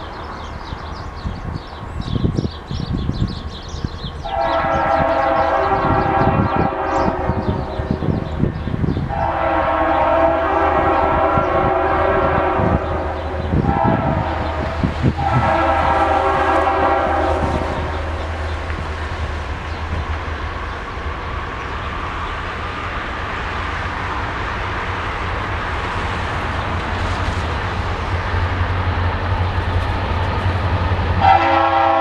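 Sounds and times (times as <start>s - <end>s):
diesel engines rumbling: 0.0s - 32.0s
locomotive horn blasts: 4.2s - 8.1s, 9.1s - 18.4s, 31.2s - 32.0s.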